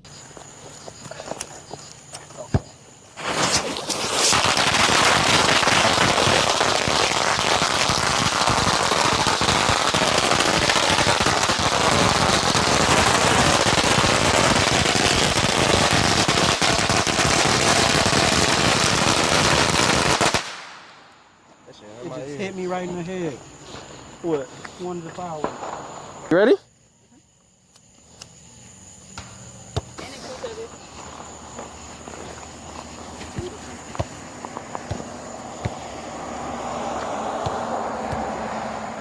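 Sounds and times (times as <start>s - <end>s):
firecrackers cracking: 2.6s - 21.2s, 25.0s - 26.3s.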